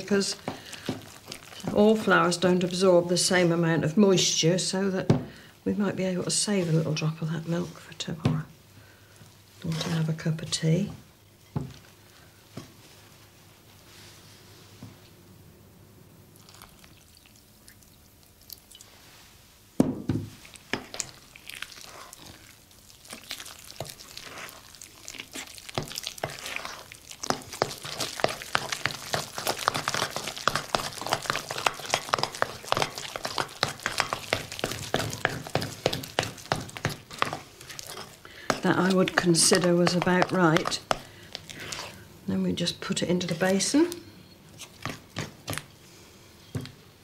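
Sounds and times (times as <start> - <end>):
spoon beating wet batter in bowl: 0.0 - 3.4, 20.4 - 42.0, 44.5 - 45.7.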